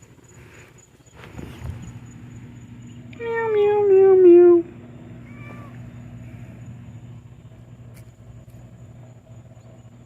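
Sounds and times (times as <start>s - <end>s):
low mechanical hum: 0.0s - 10.0s
cat meowing: 5.2s - 5.9s.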